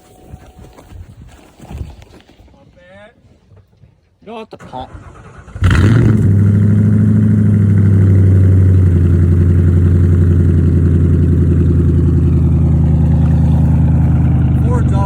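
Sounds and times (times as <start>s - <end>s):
car engine fast idle: 4.7s - 15.0s.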